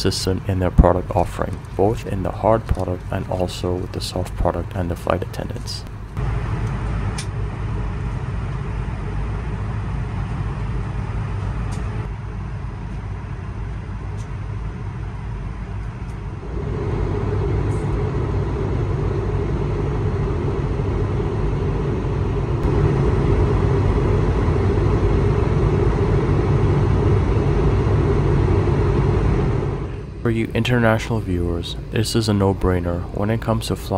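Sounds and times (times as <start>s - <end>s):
jet airliner cabin drone: 0.0s - 33.9s.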